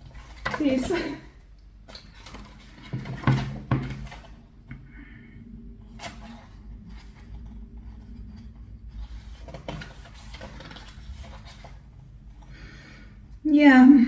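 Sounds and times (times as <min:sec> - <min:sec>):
paper pages rustling: 0:05.9 - 0:13.0.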